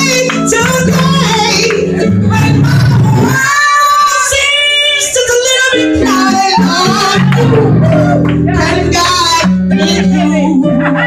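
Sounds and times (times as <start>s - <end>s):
woman singing gospel: 0.0s - 11.0s.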